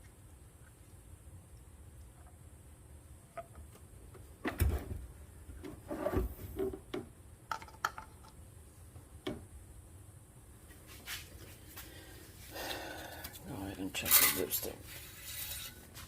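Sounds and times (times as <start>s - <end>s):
rubbing scrapes: 14.1s - 16.0s.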